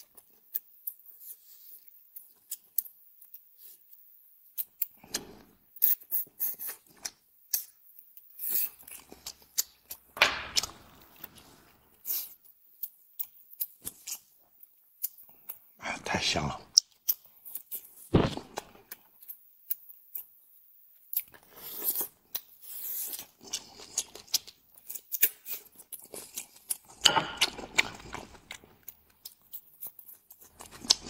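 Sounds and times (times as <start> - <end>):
person biting and chewing food: 0.0 - 15.7, 16.8 - 31.0.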